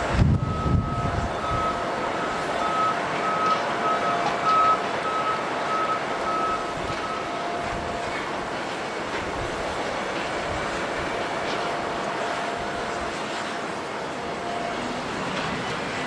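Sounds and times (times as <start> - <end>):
reversing alarm beeping: 0.0 - 16.0.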